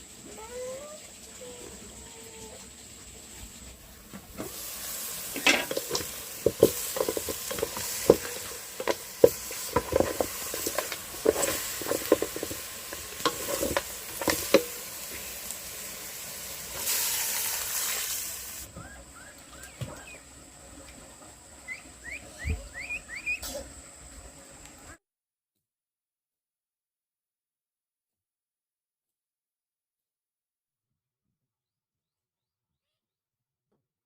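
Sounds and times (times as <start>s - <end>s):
food sizzling in a pan: 0.0s - 18.7s
utensil scraping against a pan: 4.4s - 15.5s.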